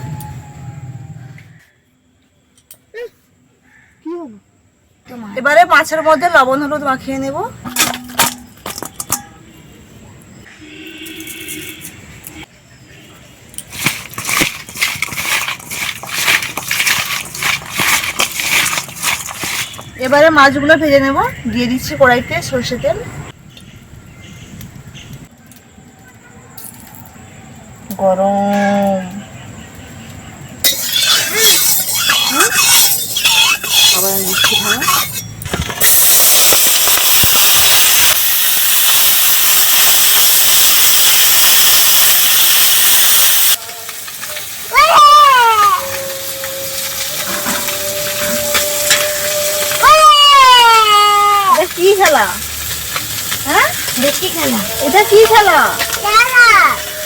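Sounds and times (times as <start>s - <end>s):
hands rubbing fish: 13.7s - 20.0s
fish sizzling in hot oil: 13.7s - 20.5s, 30.6s - 35.2s, 35.8s - 57.0s.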